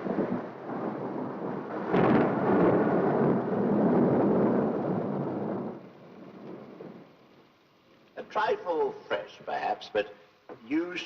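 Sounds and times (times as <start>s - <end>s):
thunder crack and rumble: 0.0s - 7.5s.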